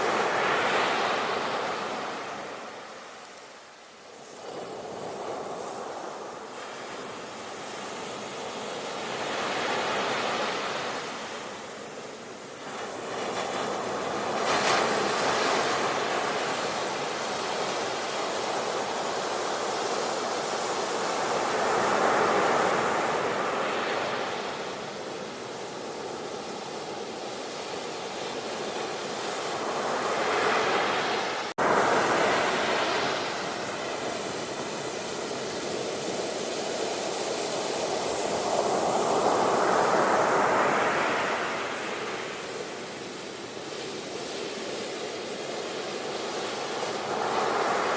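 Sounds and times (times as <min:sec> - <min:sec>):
sea waves breaking: 0:12.6 - 0:47.9.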